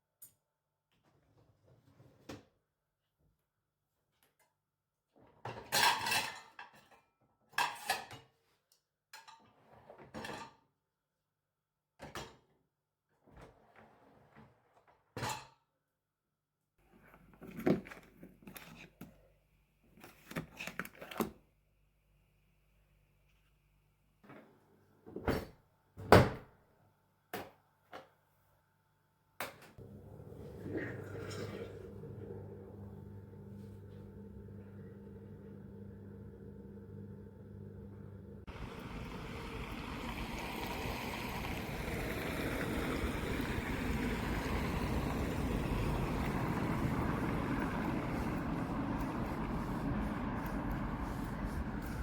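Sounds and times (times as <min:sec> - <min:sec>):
steady mechanical hum: 0:29.8 - 0:52.0.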